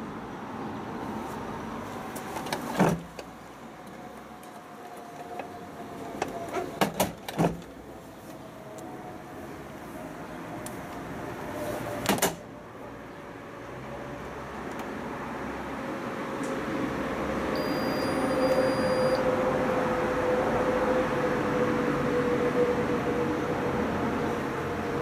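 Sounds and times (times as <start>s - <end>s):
machine hum with held tone: 17.5s - 19.2s.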